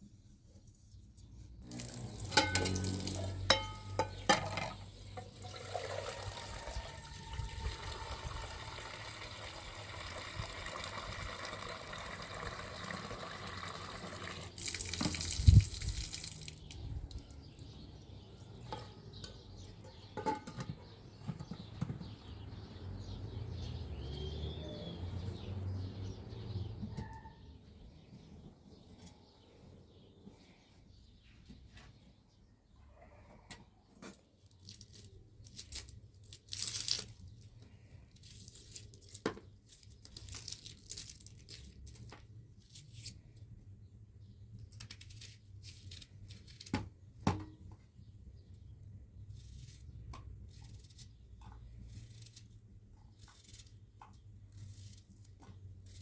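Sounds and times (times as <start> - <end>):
water running and splashing: 5.4 - 16.7
handling knocks and clicks: 18.6 - 22.2.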